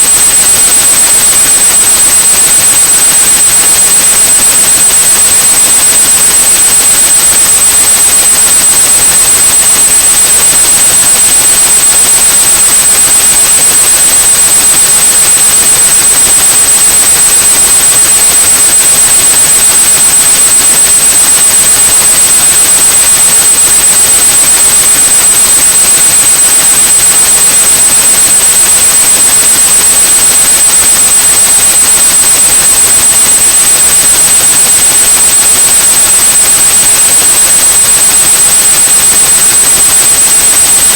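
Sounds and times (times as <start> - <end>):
continuous high pure tone: 0.0 - 28.0.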